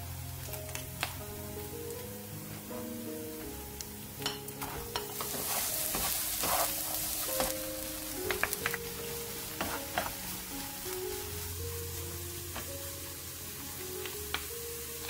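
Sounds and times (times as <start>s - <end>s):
background music: 0.0s - 15.0s
food sizzling in frying pan: 0.0s - 15.0s
spatula stirring and scraping pan: 4.2s - 14.2s.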